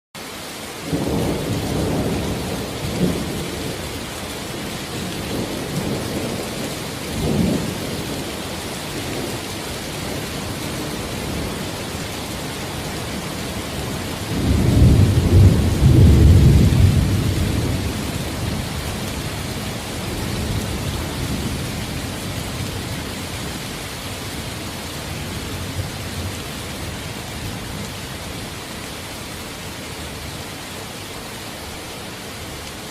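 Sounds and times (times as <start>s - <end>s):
steady rain falling: 0.2s - 32.9s
low rolling thunder: 0.9s - 23.6s.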